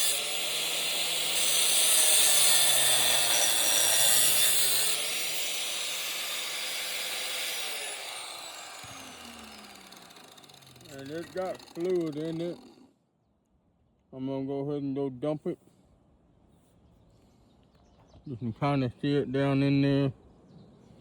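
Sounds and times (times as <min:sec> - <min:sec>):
angle grinder cutting metal: 0:00.0 - 0:12.9
grinder disc spinning down: 0:00.0 - 0:12.9.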